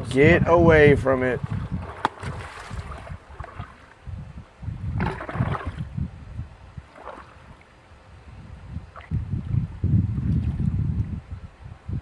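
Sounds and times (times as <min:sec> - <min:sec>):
water gurgling down a drain: 0:04.8 - 0:05.9.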